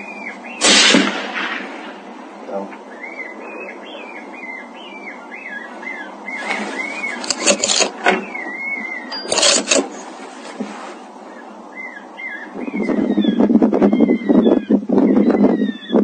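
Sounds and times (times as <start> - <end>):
bird warbling chirps: 0.0 - 0.6, 2.8 - 10.2
rustling noise: 6.3 - 8.2, 9.3 - 11.3.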